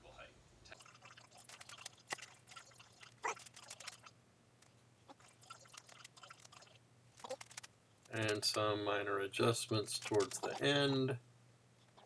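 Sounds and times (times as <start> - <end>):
small clicks and taps: 5.8 - 8.6.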